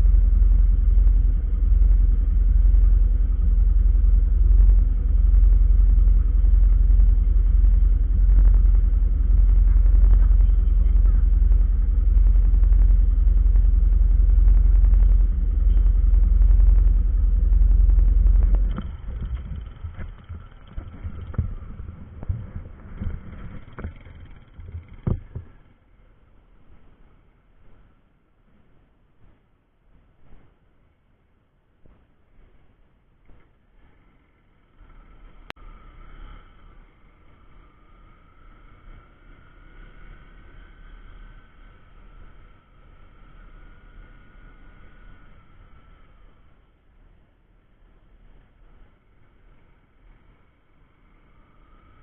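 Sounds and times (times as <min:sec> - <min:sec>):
moving vehicle rumble: 0:00.0 - 0:31.0, 0:31.8 - 0:52.0
knocks and clicks: 0:14.4 - 0:25.6.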